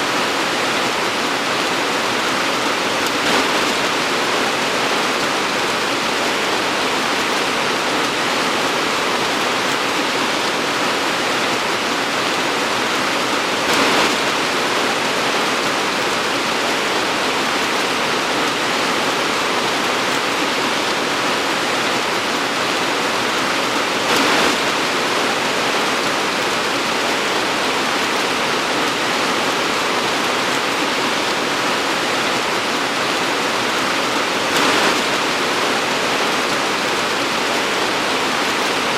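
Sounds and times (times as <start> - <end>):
torrential rain: 0.0 - 38.9.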